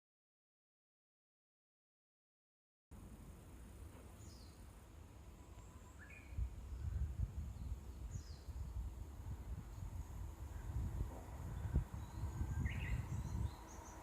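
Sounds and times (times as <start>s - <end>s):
outdoor ambience: 2.9s - 14.0s
uneven low rumbling: 5.3s - 14.0s.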